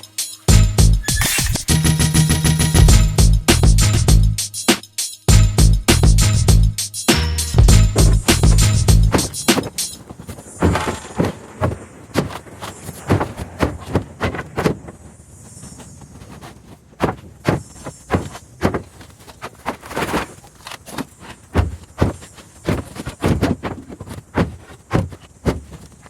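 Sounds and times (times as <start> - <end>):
irregular knocks and clatters: 7.6 - 26.0.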